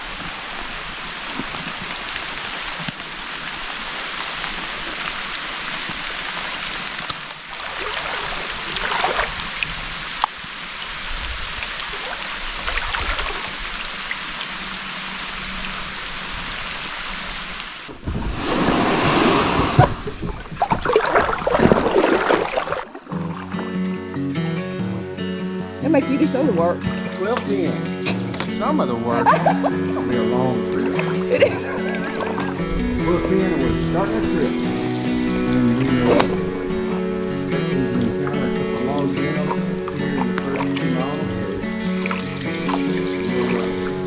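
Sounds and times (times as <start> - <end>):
rain hissing: 22.9 - 44.0
dripping ticks: 23.1 - 44.0.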